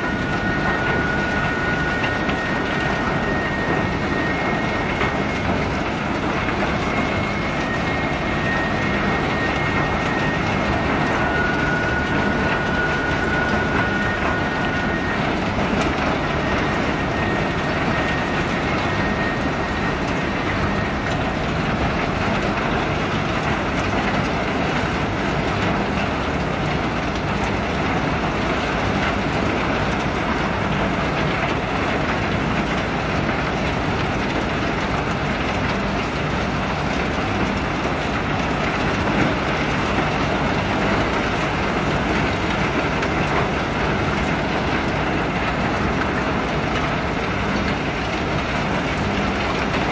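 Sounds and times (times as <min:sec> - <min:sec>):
faint high whine: 0:00.0 - 0:22.8.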